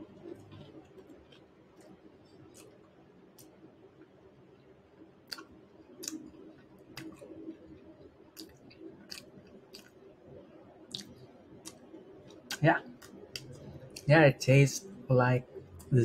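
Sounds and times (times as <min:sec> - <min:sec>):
person chewing crispy food: 0:00.0 - 0:04.1, 0:05.3 - 0:10.0, 0:10.9 - 0:14.1.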